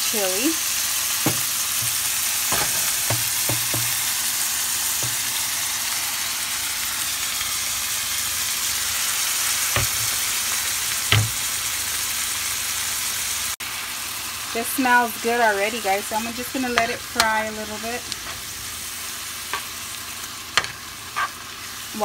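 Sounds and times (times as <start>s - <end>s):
vegetables sizzling in hot oil: 0.0s - 22.0s
knocks against pan: 1.2s - 4.0s.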